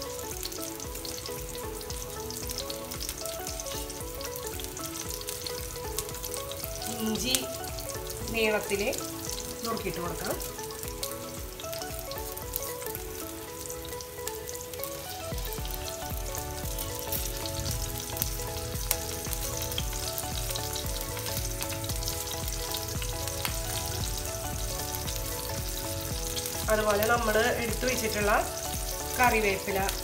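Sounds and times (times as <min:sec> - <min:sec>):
onions sizzling in hot oil: 0:00.0 - 0:30.0
music with a low beat: 0:15.3 - 0:30.0.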